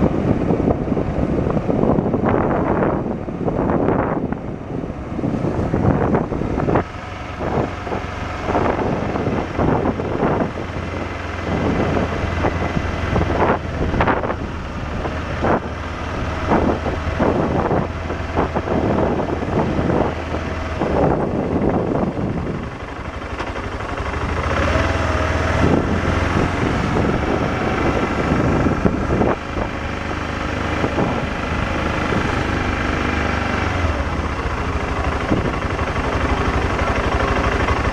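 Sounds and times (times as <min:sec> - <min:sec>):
motorcycle engine drone: 0:00.0 - 0:37.9
wind buffeting on microphone: 0:00.0 - 0:37.9.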